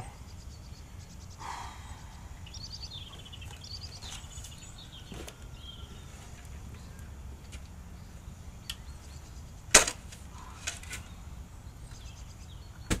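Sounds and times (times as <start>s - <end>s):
low steady rumble: 0.0s - 12.8s.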